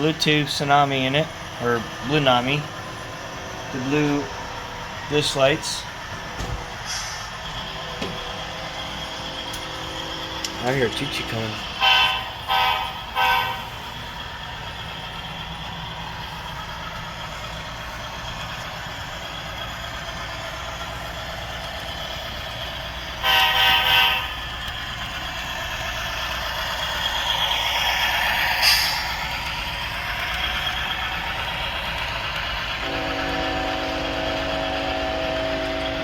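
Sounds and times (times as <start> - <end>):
diesel engine hum: 0.0 - 36.0
model locomotive horn blasts: 11.8 - 13.8, 23.2 - 24.4, 32.8 - 36.0.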